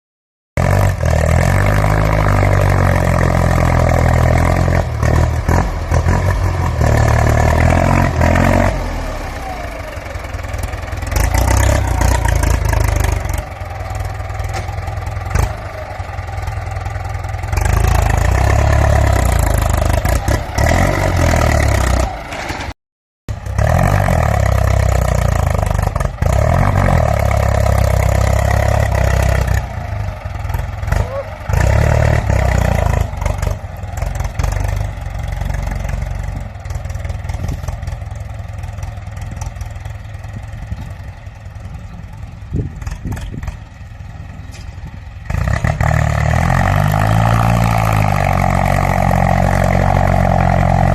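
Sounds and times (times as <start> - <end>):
tractor diesel engine revving: 0.6 - 50.9.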